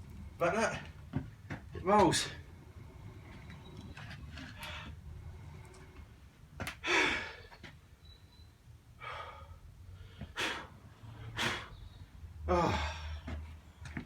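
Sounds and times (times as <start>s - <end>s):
man sighing heavily: 12.4s - 13.3s.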